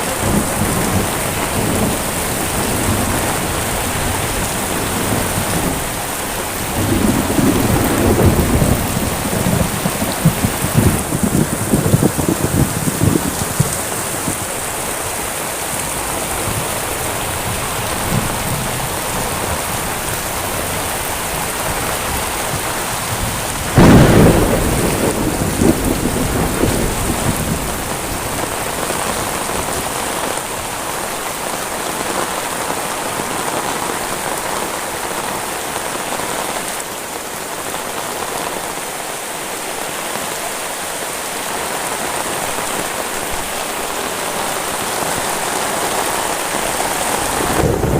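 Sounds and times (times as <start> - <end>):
thunderclap rumbling: 0.0 - 30.3, 46.0 - 47.9
heavy rain: 0.0 - 47.9.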